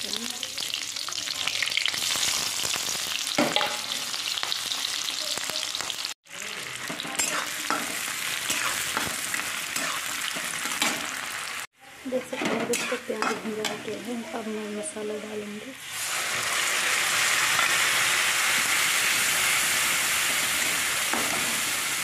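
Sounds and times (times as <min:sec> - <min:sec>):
onions frying in oil: 0:00.0 - 0:22.0
spices sizzling in hot oil: 0:00.0 - 0:22.0
spatula stirring: 0:12.2 - 0:13.9.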